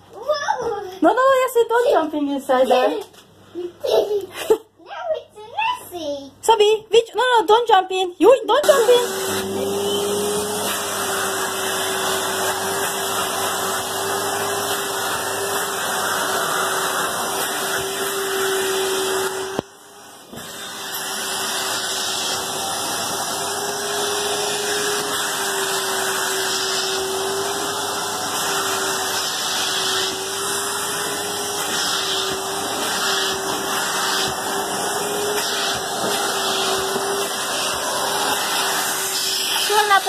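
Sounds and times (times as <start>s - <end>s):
vacuum cleaner motor whine: 8.5s - 40.0s.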